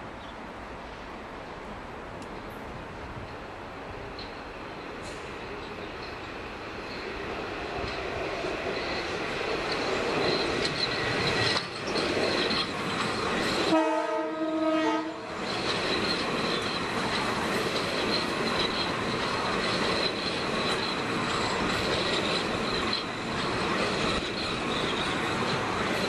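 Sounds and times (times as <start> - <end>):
train wheels rumbling past: 2.4 - 26.0
train horn: 13.6 - 15.4.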